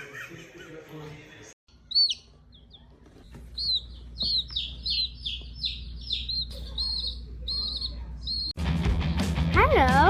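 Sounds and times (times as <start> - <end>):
bird chirping: 1.7 - 8.6.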